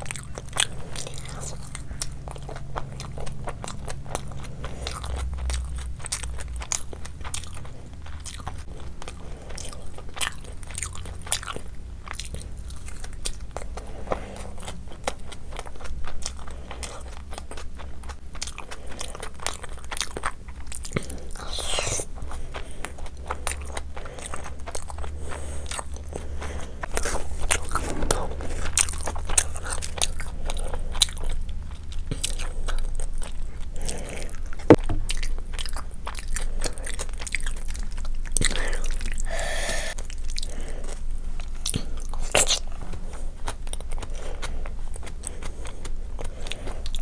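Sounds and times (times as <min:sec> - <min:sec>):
wet chewing: 0:00.0 - 0:47.0.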